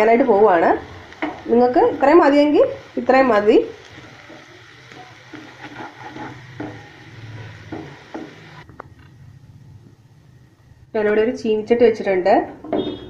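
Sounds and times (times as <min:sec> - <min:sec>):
meat sizzling in a pan: 0:00.0 - 0:08.6
spatula scraping pan: 0:03.9 - 0:08.6.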